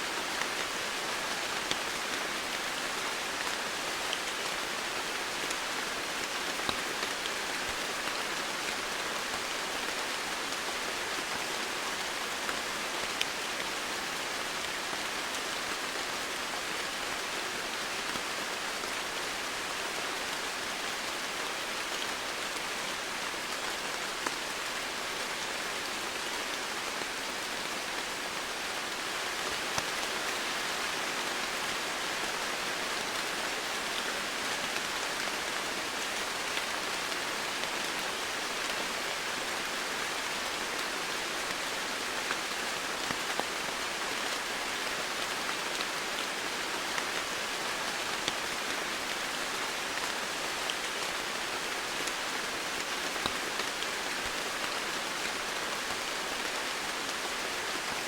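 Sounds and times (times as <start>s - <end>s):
rain falling on foliage: 0.0s - 58.0s.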